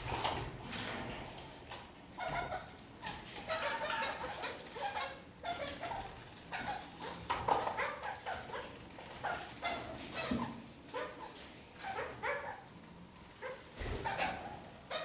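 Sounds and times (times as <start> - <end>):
parakeets chattering: 2.2 - 12.7.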